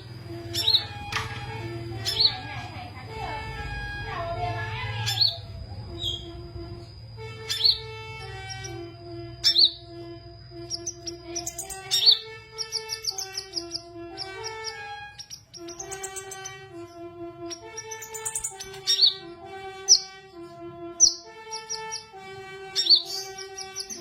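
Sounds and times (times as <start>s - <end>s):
songbird chirping and trilling: 0.0s - 24.0s
slow background music: 6.6s - 24.0s.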